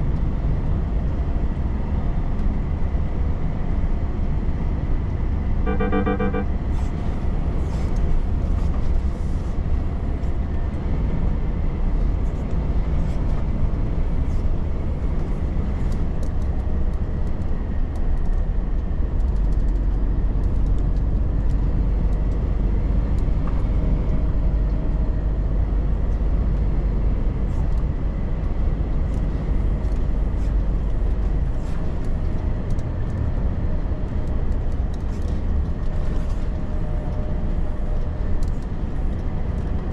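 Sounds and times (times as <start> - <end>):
road noise: 0.0 - 39.9
truck diesel engine rumble: 0.0 - 39.9
quick beeps: 5.7 - 6.5.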